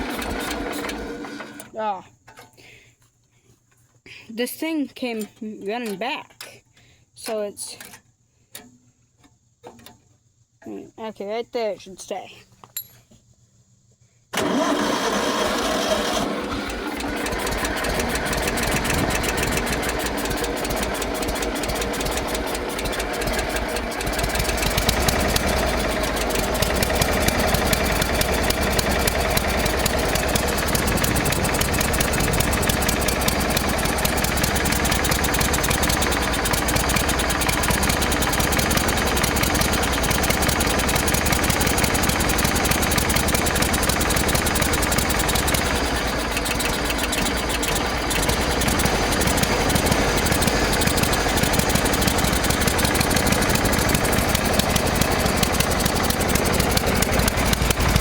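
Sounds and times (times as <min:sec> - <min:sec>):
lawn mower engine running: 0:00.0 - 0:02.0, 0:14.3 - 0:58.0.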